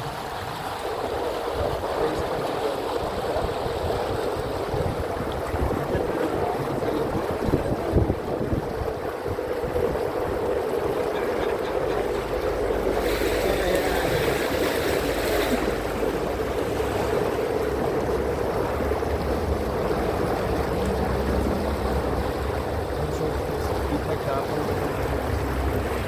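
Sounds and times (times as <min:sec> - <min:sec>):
boat motor running: 0:00.0 - 0:26.0
water around hull: 0:00.0 - 0:26.0.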